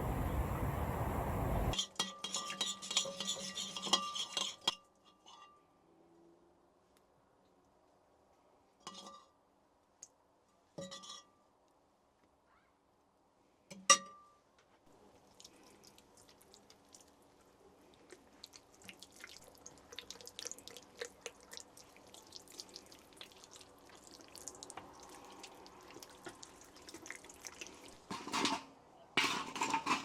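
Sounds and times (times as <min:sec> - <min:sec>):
water dripping: 0:15.2 - 0:28.2.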